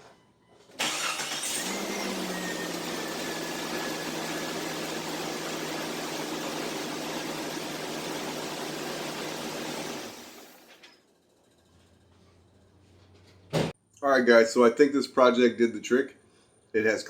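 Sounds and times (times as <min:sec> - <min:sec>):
car engine running: 0:01.0 - 0:10.5.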